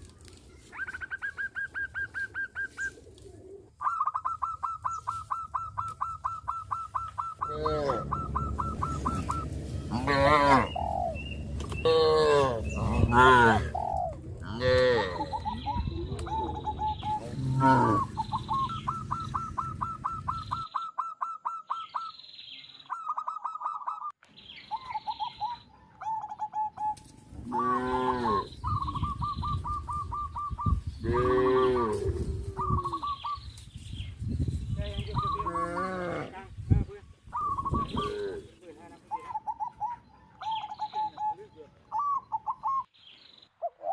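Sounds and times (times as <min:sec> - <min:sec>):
bird chirping: 0:03.7 - 0:14.2, 0:15.1 - 0:27.2, 0:27.8 - 0:31.8, 0:32.5 - 0:43.9
cattle mooing: 0:07.5 - 0:08.3, 0:09.9 - 0:10.8, 0:11.8 - 0:13.7, 0:14.5 - 0:15.4, 0:17.2 - 0:18.1, 0:27.4 - 0:28.5.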